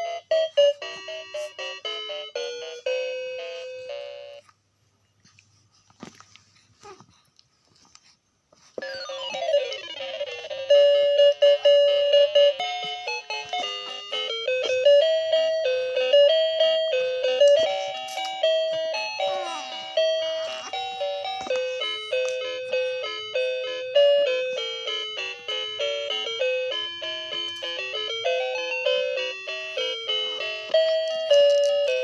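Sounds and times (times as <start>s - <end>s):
tinkling chime melody: 8.9s - 32.0s.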